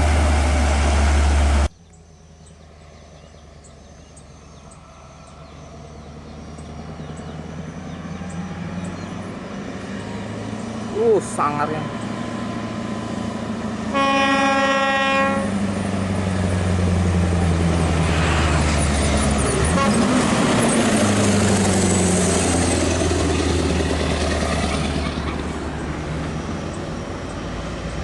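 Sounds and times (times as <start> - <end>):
diesel engine running under load: 0.0 - 28.0
truck horn: 13.9 - 15.6, 19.6 - 20.2.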